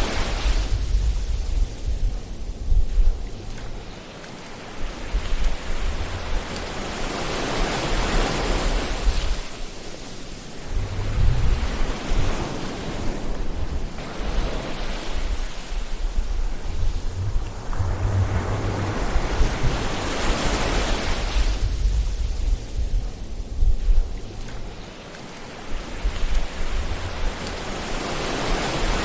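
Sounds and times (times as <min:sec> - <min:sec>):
waves washing in: 0:00.0 - 0:29.0
low rumble: 0:10.6 - 0:12.5, 0:15.2 - 0:25.0.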